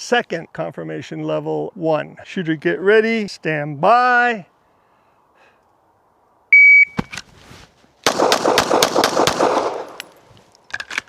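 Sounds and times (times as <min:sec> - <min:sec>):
shot timer beep: 0:06.6 - 0:07.1
rapid pistol shots: 0:08.0 - 0:10.1.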